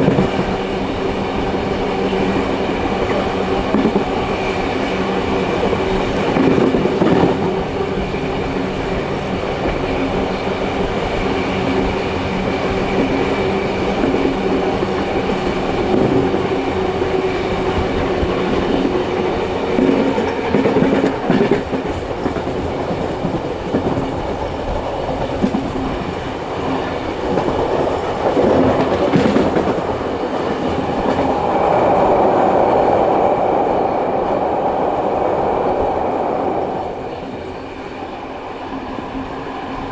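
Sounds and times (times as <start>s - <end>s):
train carriages rumbling: 0.0s - 39.9s
wheels clicking over rail joints: 1.4s - 31.4s.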